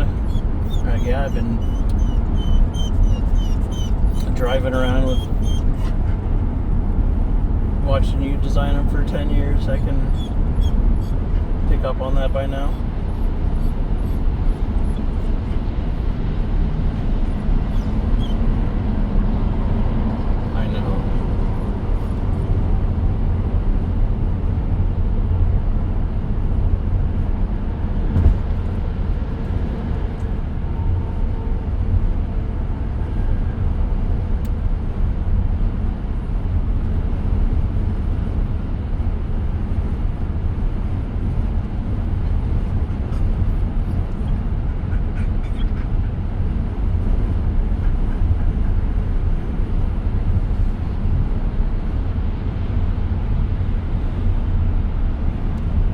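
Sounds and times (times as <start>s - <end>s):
road and tyre rumble in car cabin: 0.0s - 55.9s
brief knock: 28.2s - 28.5s.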